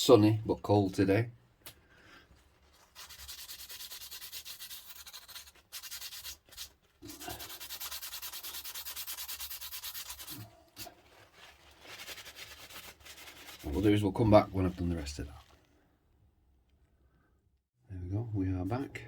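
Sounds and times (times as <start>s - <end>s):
sandpaper rubbing by hand: 2.7s - 15.2s.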